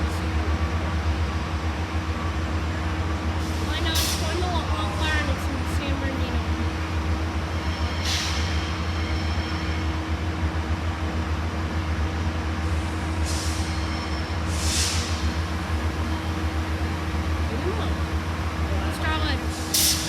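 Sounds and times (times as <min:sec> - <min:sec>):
diesel train engine idling: 0:00.0 - 0:20.0
air hissing: 0:14.5 - 0:15.4, 0:19.5 - 0:20.0.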